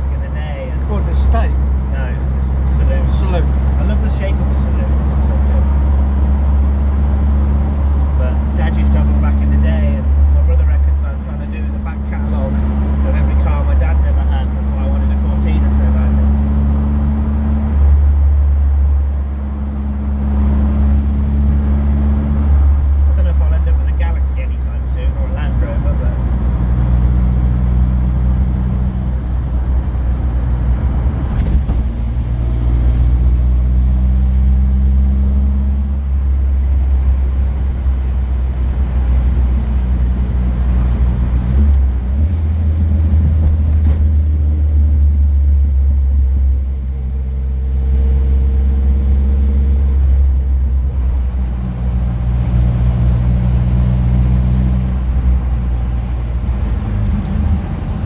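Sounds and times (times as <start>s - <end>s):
car engine droning: 0.0s - 58.0s.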